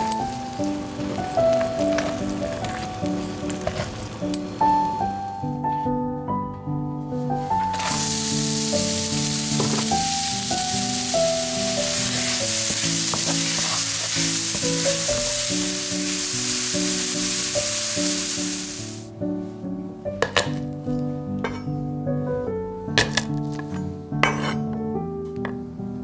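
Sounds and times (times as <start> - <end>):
wooden spatula stirring: 0.0 - 5.1, 7.4 - 18.6
onions sizzling in frying pan: 0.0 - 5.5, 7.4 - 19.1.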